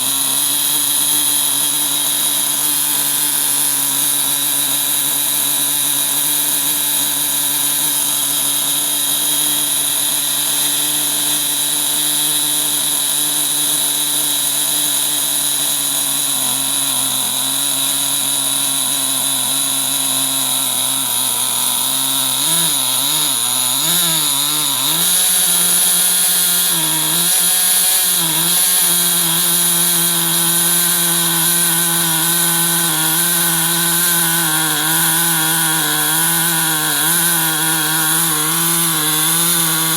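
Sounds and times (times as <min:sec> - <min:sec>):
model glow engine running: 0:00.0 - 0:39.9.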